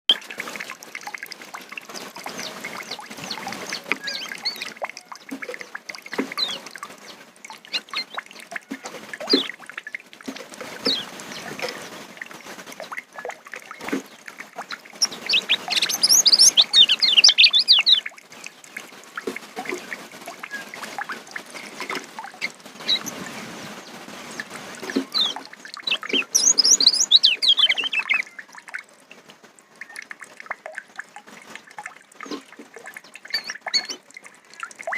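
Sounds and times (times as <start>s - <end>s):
songbird chirping and singing: 15.0s - 18.1s, 25.1s - 28.5s.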